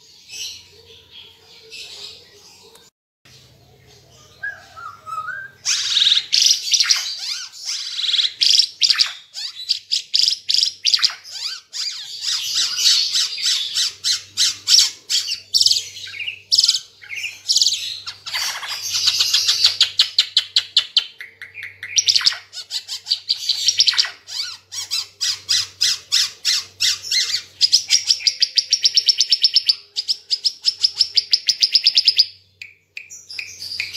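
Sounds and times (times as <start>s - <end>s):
songbird singing trills: 3.4s - 33.9s.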